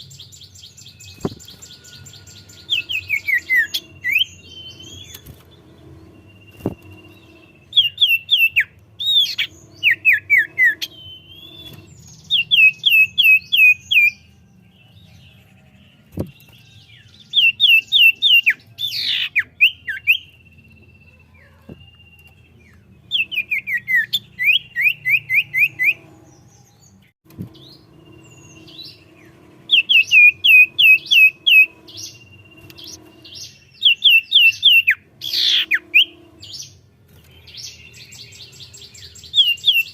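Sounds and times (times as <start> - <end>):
bird whistling song: 0.0 - 15.5, 16.2 - 39.9.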